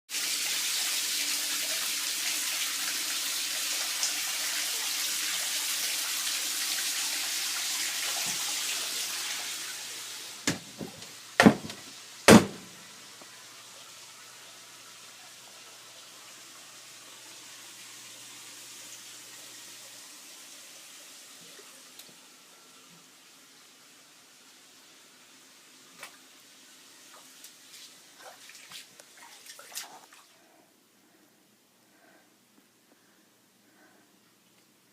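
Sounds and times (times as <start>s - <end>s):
running water rushing: 0.2s - 22.7s
sharp knocks: 10.5s - 12.7s.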